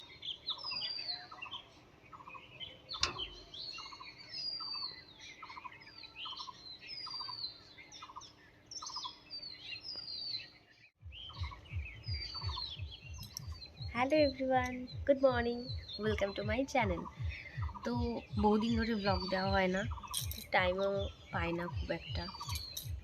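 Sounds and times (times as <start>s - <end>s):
birds chirping: 0.0s - 23.0s
sharp click: 3.0s - 3.4s.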